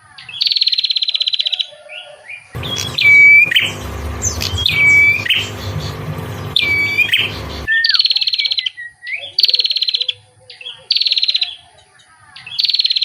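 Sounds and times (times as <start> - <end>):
bird whistled call: 1.8 - 9.4
buzzy pulsed bird trills: 2.6 - 7.7
steady low hum: 2.6 - 7.7.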